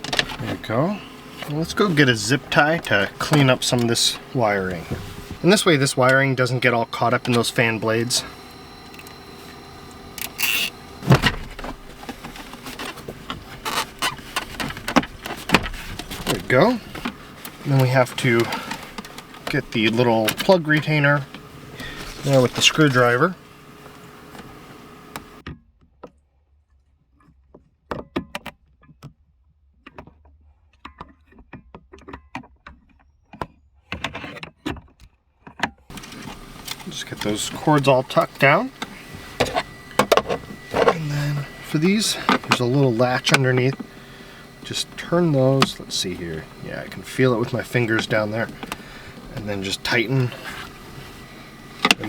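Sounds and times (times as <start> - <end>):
hands working on wiring: 0.0 - 25.4, 35.9 - 52.0.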